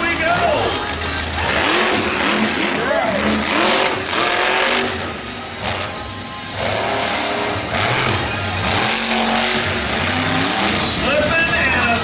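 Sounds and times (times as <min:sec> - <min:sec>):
loud music over loudspeakers: 0:00.0 - 0:01.7, 0:10.6 - 0:12.0
truck engine revving: 0:00.0 - 0:12.0.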